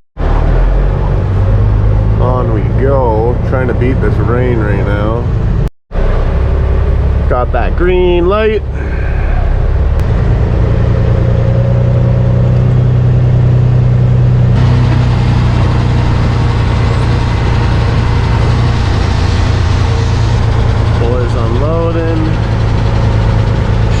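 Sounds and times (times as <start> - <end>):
rushing noise: 0.2 - 24.0
truck diesel engine running: 0.2 - 24.0.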